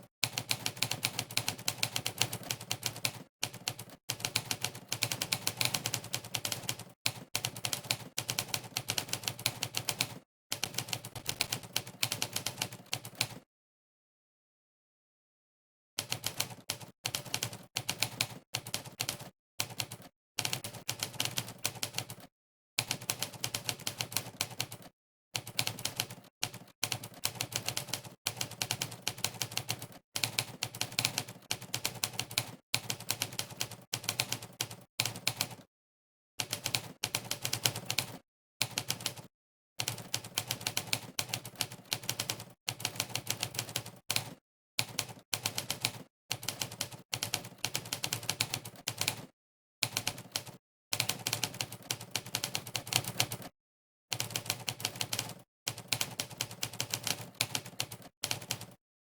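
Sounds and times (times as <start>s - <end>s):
typewriter keystroke clacks: 39.8s - 53.5s, 54.1s - 58.8s.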